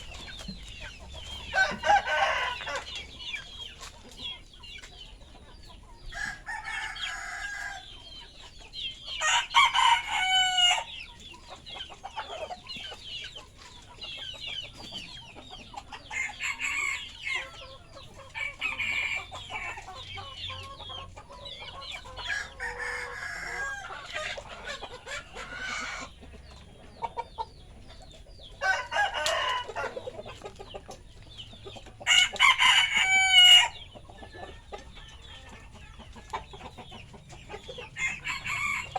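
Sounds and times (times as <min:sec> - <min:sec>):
roosters crowing: 0:00.0 - 0:03.4, 0:06.0 - 0:08.1, 0:09.0 - 0:11.1, 0:15.5 - 0:26.5, 0:28.1 - 0:38.9
chickens clucking: 0:00.0 - 0:38.9.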